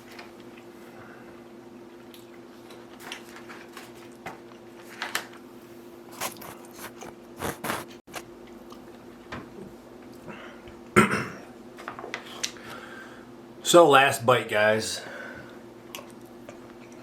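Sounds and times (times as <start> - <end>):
faint steady hum: 0.0 - 17.0
person chewing food: 6.1 - 9.0, 15.8 - 17.0.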